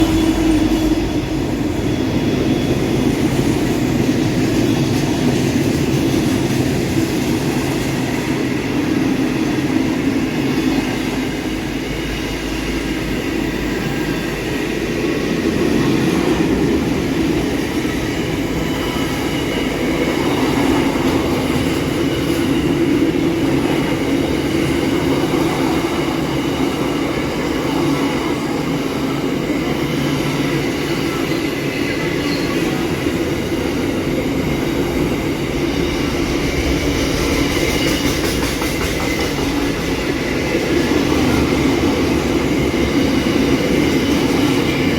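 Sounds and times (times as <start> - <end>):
freight train rumbling on rails: 0.0 - 44.9.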